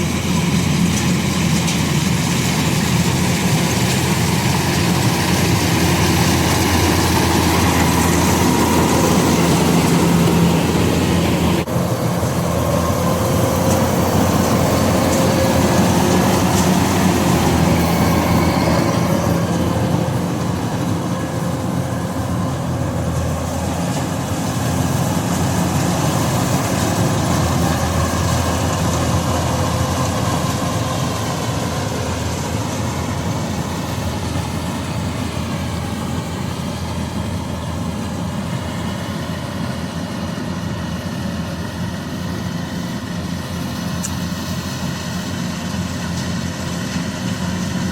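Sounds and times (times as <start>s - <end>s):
combine harvester running: 0.0s - 47.9s.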